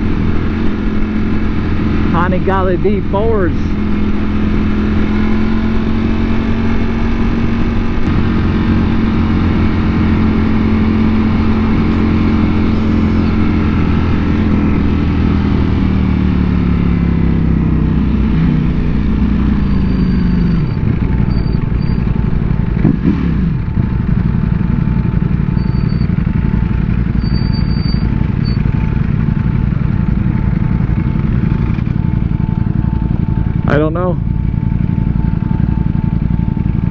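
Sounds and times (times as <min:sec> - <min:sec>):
motorcycle engine running: 0:00.0 - 0:36.9.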